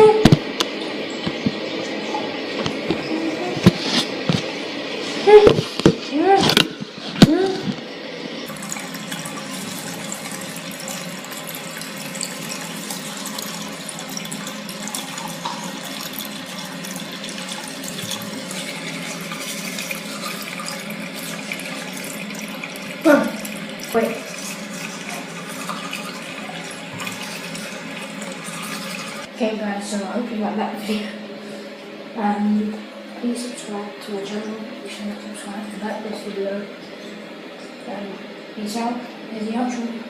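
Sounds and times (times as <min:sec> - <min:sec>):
tap running into sink: 0:08.5 - 0:29.3.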